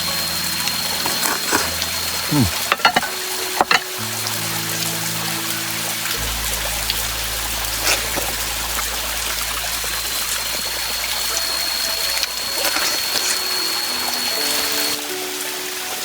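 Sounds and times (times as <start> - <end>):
water rushing: 0.0 - 16.0
thin high tone: 6.2 - 15.1.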